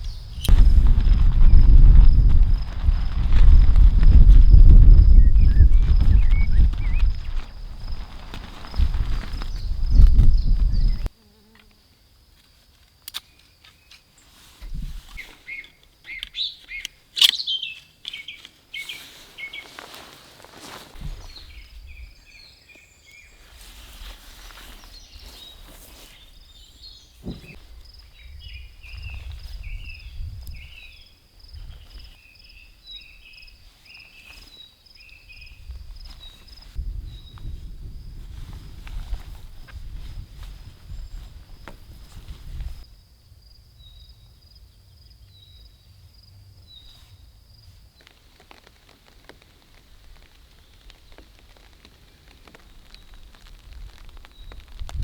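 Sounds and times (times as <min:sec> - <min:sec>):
birds chirping: 0:05.0 - 0:11.1, 0:15.2 - 0:19.8.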